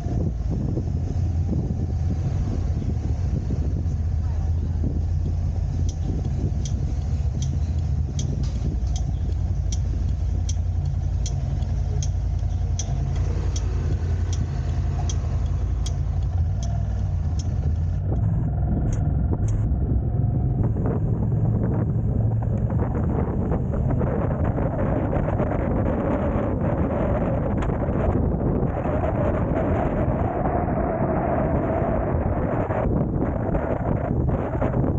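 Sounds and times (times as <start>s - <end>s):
car driving rumble: 0.0s - 34.9s
turn signal ticking: 4.8s - 25.5s.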